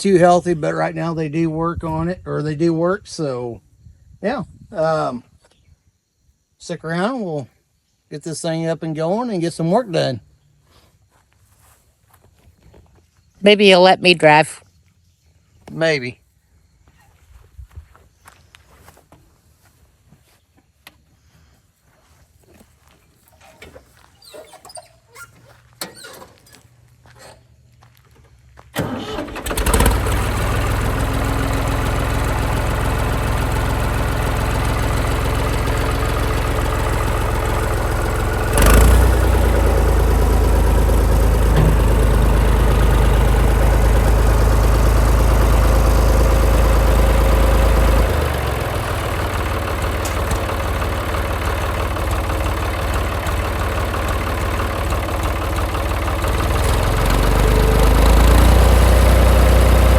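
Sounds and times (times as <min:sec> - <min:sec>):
diesel tractor engine running: 0:23.2 - 0:27.9, 0:28.7 - 0:59.9
sharp mechanical clunk: 0:41.5 - 0:42.1.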